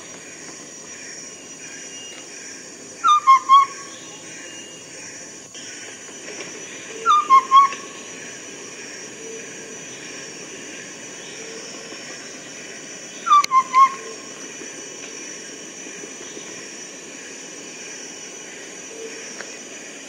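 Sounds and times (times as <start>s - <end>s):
high background hiss: 0.0s - 20.0s
bird whistled hoots: 3.0s - 3.9s, 7.0s - 8.0s, 13.2s - 14.2s.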